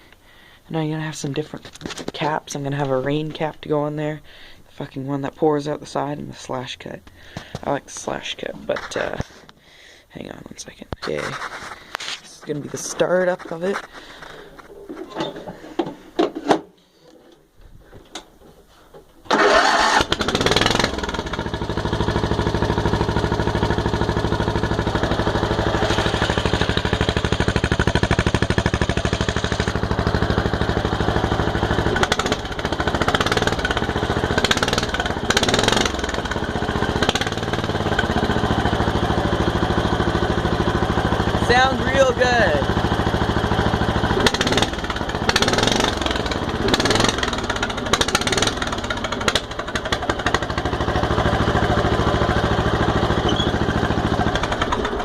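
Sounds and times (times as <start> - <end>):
mower engine running: 19.3 - 55.0.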